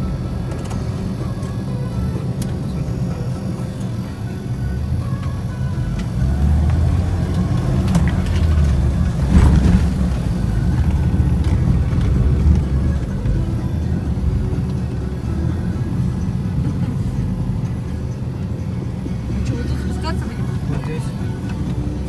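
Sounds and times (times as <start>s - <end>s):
suv engine running under load: 0.0s - 22.0s.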